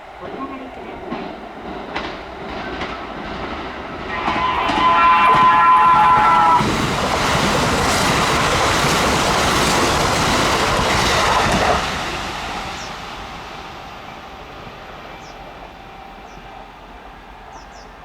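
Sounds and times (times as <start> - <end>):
train cars rushing past: 0.0 - 18.0
train horn: 4.0 - 6.8.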